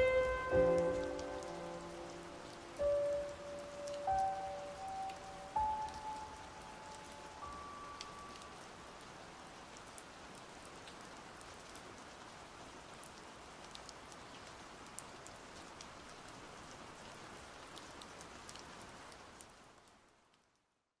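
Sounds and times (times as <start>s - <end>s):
raindrop ticks: 0.0s - 11.9s, 12.9s - 16.4s, 17.0s - 20.6s
steady rain hiss: 0.0s - 20.8s.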